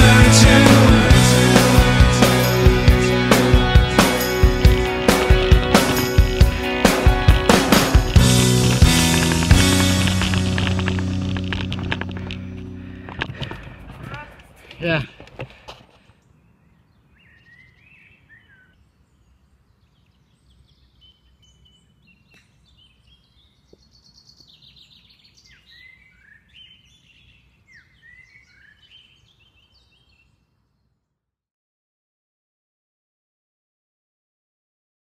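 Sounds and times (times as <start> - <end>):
low outdoor rumble: 3.8 - 15.2
faint birdsong: 12.2 - 31.2.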